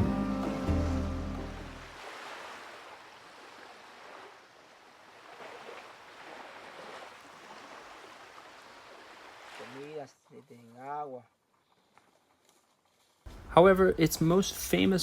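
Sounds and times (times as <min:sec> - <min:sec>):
faint ocean waves: 0:00.0 - 0:11.2.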